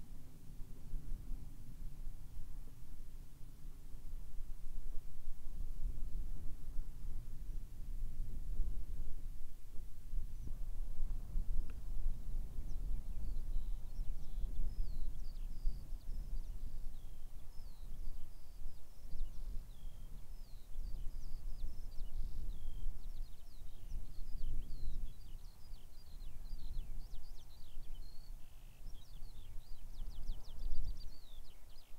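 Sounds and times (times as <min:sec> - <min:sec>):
small birds chirping: 0:12.5 - 0:31.9.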